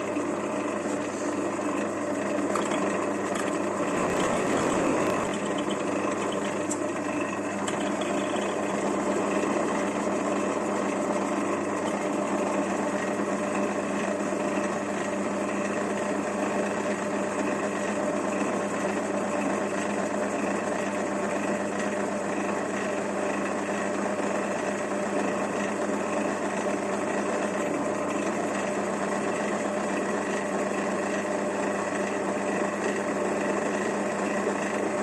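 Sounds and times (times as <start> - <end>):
metal lathe humming and whining: 0.0 - 35.0.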